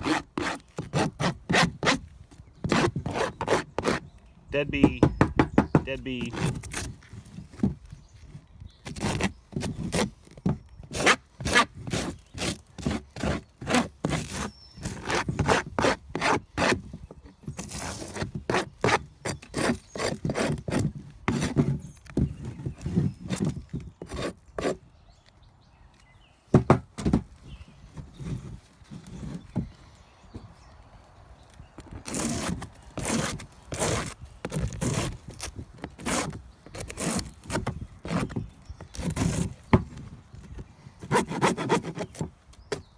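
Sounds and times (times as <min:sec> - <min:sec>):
comb scraped off wooden frame: 0:32.0 - 0:39.8.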